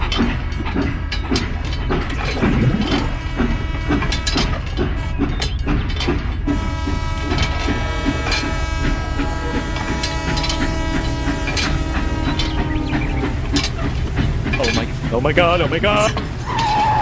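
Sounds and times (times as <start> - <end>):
train clacking on rails: 0.0 - 17.0
steady pitched tone: 2.1 - 3.4.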